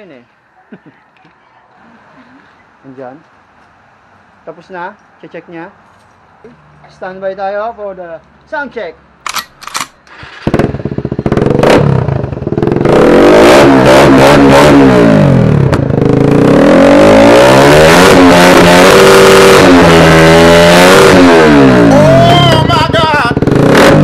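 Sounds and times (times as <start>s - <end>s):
motorcycle engine revving: 9.3s - 24.0s.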